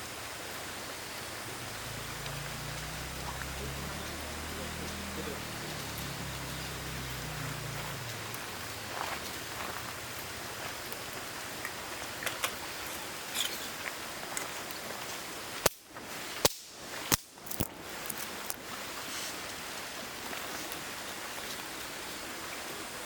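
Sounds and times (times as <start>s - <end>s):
small pops and crackles: 15.6s - 18.6s.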